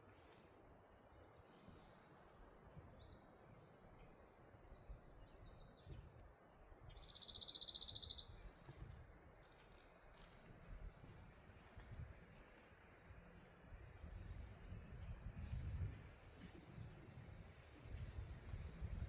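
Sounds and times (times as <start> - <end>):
songbird singing: 1.9 - 3.3, 6.9 - 8.5.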